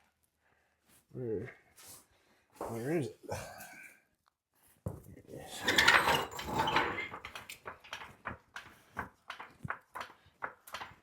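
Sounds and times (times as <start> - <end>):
metal gear scraping rattle: 5.6 - 7.0.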